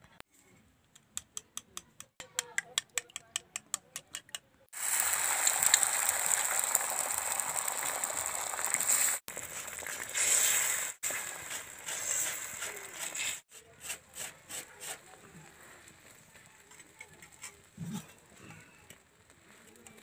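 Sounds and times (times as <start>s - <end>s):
egg roll sizzling in oil: 4.8s - 13.5s.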